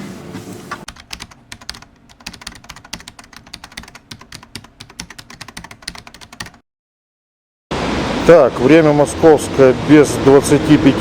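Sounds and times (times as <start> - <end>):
computer keyboard typing: 0.9 - 6.6.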